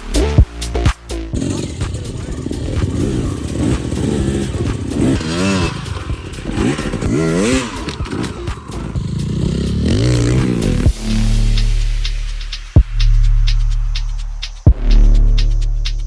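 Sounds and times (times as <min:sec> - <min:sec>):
dirt bike engine revving: 0:01.4 - 0:11.5.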